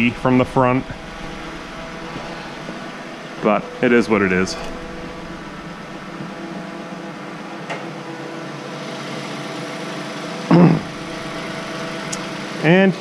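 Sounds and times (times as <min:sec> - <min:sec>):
car engine idling: 0:00.0 - 0:07.5, 0:10.8 - 0:12.6.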